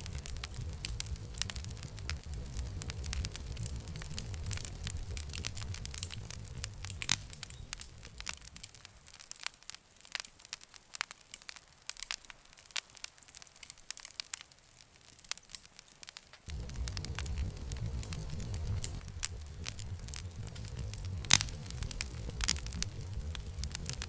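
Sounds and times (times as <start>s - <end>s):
low rumble: 0.0s - 9.1s, 16.5s - 24.0s
wood fire crackling and popping: 0.0s - 24.0s.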